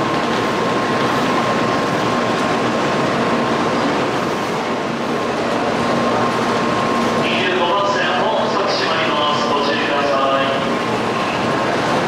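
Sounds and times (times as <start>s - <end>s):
train running noise: 0.0s - 12.0s.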